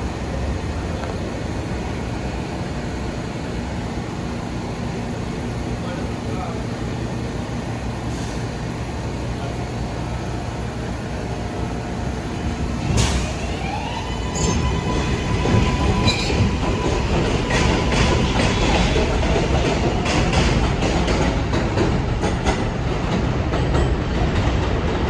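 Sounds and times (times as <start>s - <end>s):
train rumbling on rails: 0.0s - 25.0s
train motor whine: 12.6s - 18.2s.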